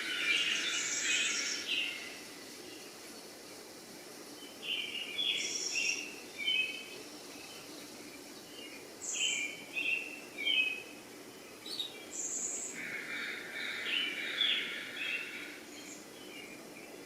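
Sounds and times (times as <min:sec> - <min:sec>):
birds chirping: 0:00.0 - 0:03.6, 0:04.2 - 0:17.0
faint background hiss: 0:00.0 - 0:17.0.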